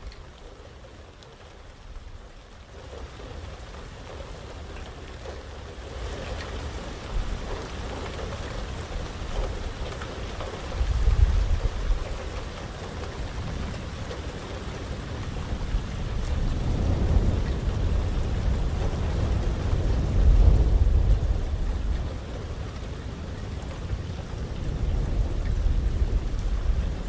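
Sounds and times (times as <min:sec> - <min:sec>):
heavy rain: 0:00.0 - 0:27.0
thunder rumble: 0:06.7 - 0:27.0.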